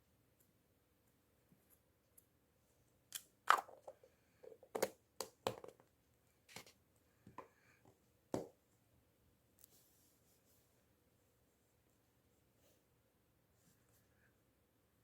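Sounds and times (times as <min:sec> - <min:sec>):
objects knocking and clicking: 0:03.5 - 0:05.9.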